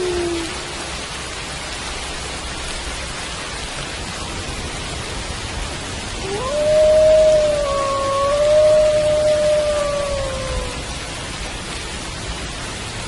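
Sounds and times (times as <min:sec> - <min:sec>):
wolf howling: 0:00.0 - 0:00.8, 0:06.2 - 0:11.0
steady rain: 0:00.0 - 0:13.0.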